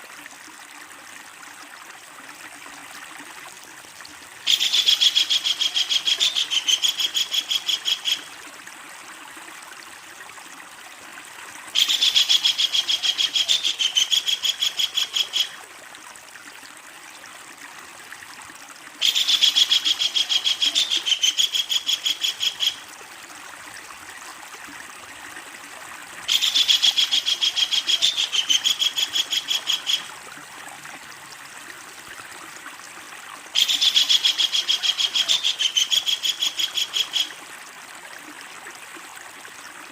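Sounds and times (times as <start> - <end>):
kingfisher rattling calls: 26.3 - 30.1.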